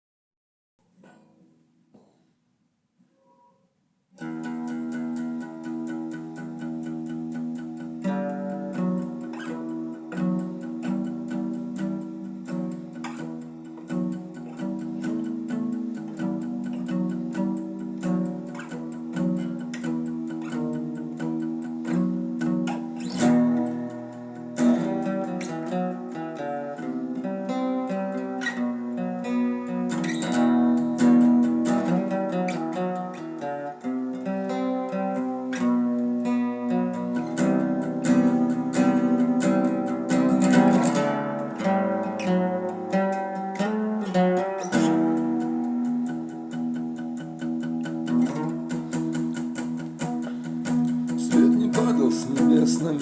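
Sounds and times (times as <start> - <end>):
acoustic guitar playing: 4.2 - 53.0.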